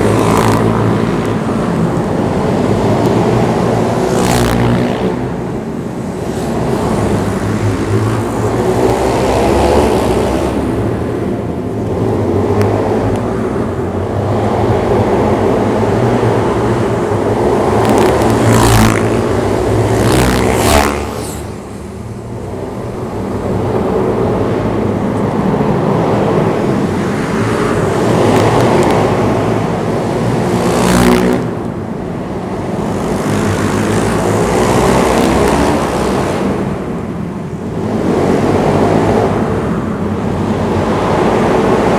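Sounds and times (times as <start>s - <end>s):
pit bike engine revving: 16.2s - 24.0s.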